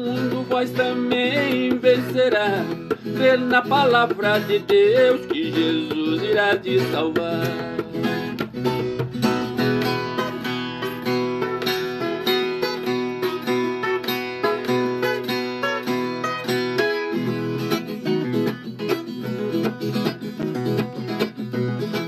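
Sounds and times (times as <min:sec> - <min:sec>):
folk guitar plucked and strummed: 0:00.0 - 0:22.0.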